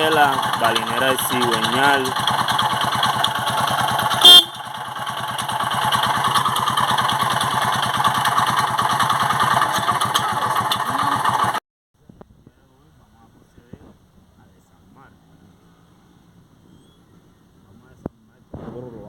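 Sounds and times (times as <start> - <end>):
motorcycle engine pulsing: 0.0 - 11.6.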